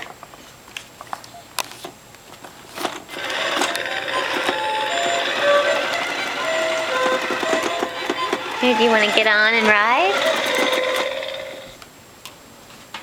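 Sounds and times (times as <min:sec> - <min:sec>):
toy clicks: 0:03.1 - 0:11.7
buzzing toy engine noise: 0:03.1 - 0:11.8.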